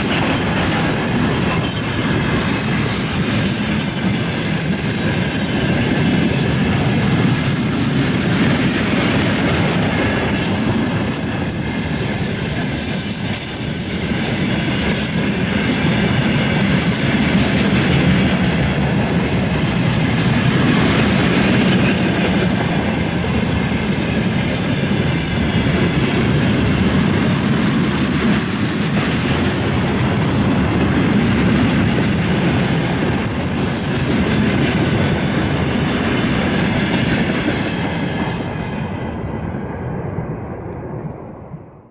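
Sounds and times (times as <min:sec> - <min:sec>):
train wagons clattering: 0:00.0 - 0:41.0
train wheels rumbling on rail: 0:00.0 - 0:41.9
high-pitched wheel squeal: 0:00.9 - 0:05.6.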